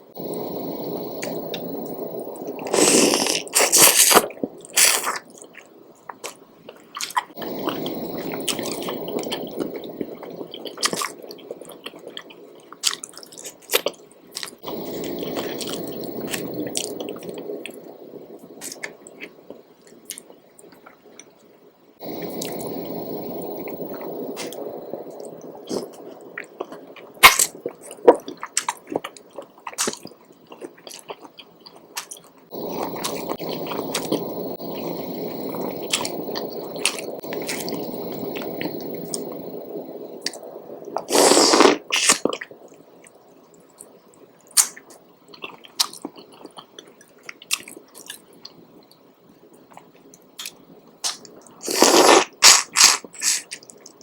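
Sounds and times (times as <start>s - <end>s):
wet chewing: 2.5s - 17.8s, 25.6s - 39.6s, 43.8s - 48.3s, 49.7s - 54.0s.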